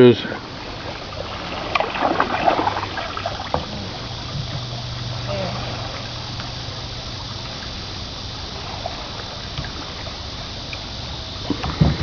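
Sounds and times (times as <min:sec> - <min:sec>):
creek water trickling: 0:00.0 - 0:12.0
faint small ticks: 0:10.6 - 0:11.8.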